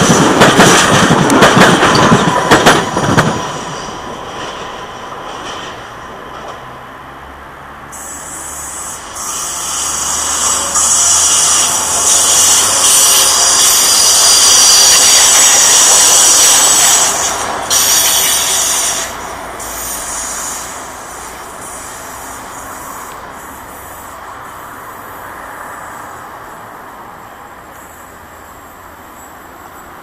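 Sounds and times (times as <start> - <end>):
train wheels hissing: 0.0 - 6.3, 7.9 - 26.6
high-pitched squealing tones: 7.9 - 23.8.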